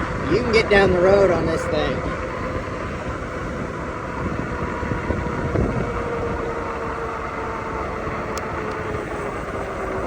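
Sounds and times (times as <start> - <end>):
electric motor whine: 0.0 - 10.0
wind buffeting microphone: 0.0 - 10.0.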